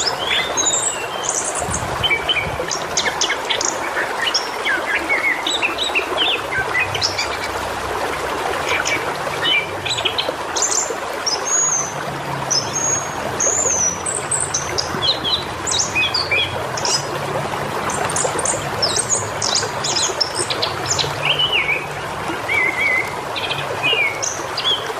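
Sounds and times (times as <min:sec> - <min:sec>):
flowing water trickling: 0:00.0 - 0:24.9.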